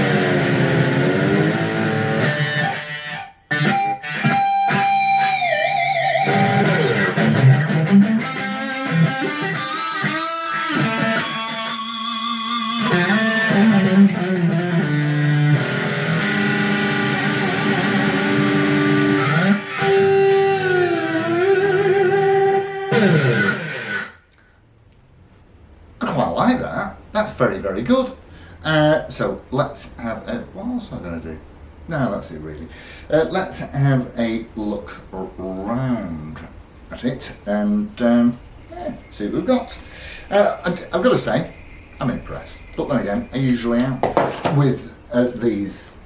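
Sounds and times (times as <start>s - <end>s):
amplified electric guitar: 0.0s - 24.5s.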